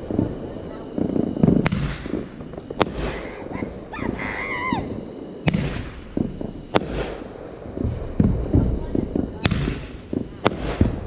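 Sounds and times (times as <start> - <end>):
crackling hiss: 0.0 - 11.0
firework bangs: 0.0 - 11.0
high wavering squeal: 2.4 - 5.4.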